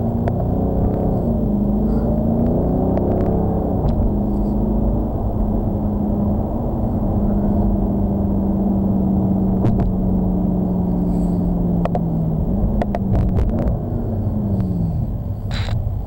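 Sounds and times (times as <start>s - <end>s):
car engine hum from inside: 0.0s - 16.0s
road rumble: 0.0s - 16.0s
sharp clicks: 15.5s - 15.8s.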